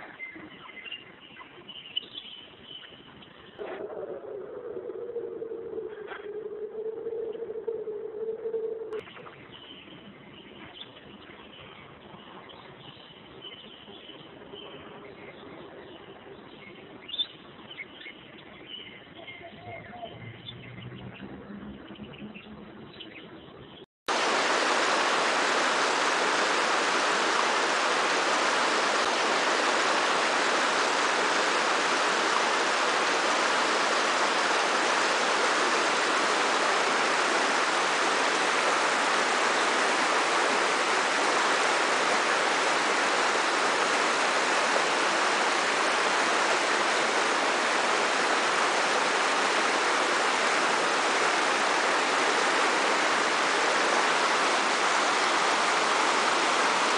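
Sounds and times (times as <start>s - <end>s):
waterfall rushing: 24.1s - 56.9s.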